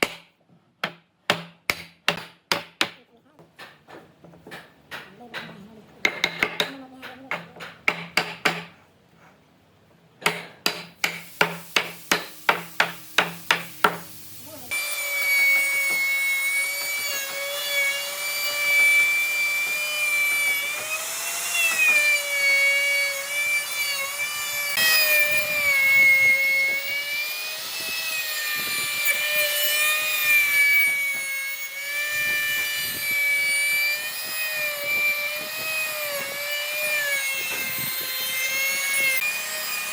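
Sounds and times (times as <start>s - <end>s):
rapid strikes on wood: 0.0s - 8.8s, 10.2s - 14.1s
woodworking power tool whine: 11.8s - 39.9s.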